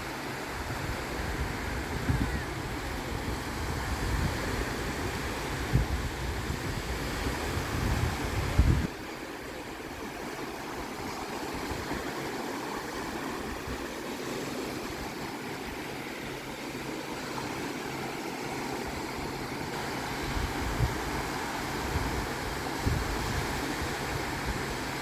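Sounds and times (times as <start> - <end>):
sea surf washing: 0.0 - 25.0
wind bumps on microphone: 0.6 - 9.1, 19.8 - 25.0.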